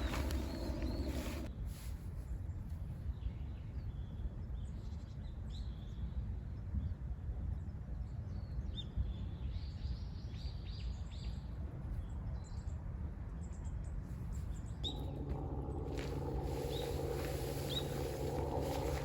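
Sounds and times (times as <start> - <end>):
coarse steady noise: 0.0 - 1.5, 14.8 - 19.0
low outdoor rumble: 0.0 - 1.5, 14.8 - 19.0
small birds chirping: 0.0 - 1.5, 14.8 - 19.0.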